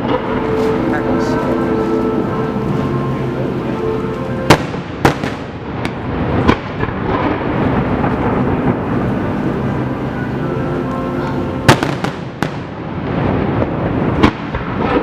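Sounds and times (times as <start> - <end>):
fireworks booming: 0.0 - 15.0
fireworks sharp cracks: 4.5 - 10.0, 11.2 - 15.0.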